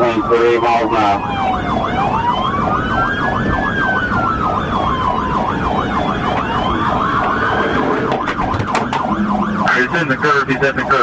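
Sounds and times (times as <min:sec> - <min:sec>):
car road noise: 0:00.0 - 0:11.0
siren fast yelp: 0:00.0 - 0:11.0
siren slow wail: 0:00.0 - 0:11.0.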